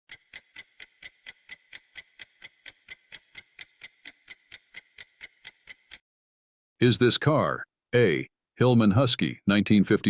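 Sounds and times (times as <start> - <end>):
clock ticking: 0.1 - 6.0.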